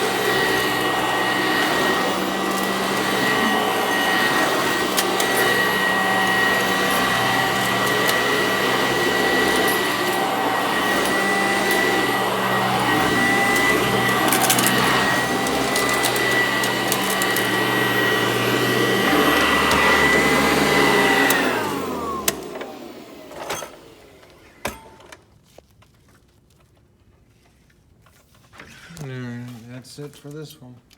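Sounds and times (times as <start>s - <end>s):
vacuum cleaner running: 0.0s - 25.2s.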